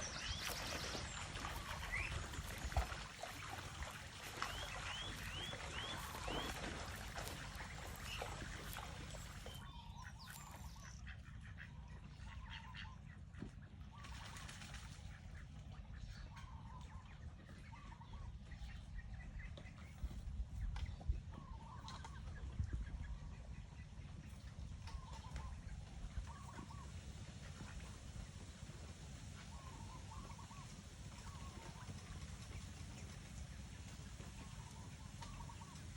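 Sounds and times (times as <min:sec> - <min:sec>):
steady low rumble: 0:00.0 - 0:14.0
poultry clucking: 0:00.4 - 0:11.6.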